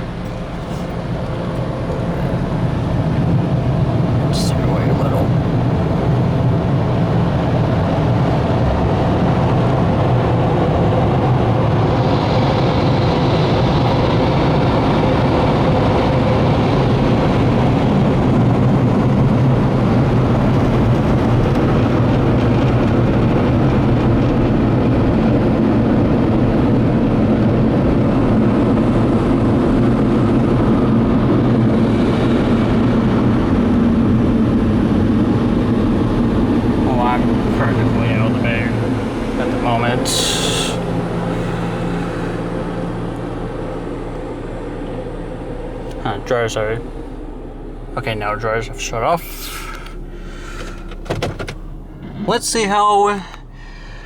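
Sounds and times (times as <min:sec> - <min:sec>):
low motor hum: 0:00.0 - 0:54.0
air dryers blowing: 0:37.2 - 0:54.0.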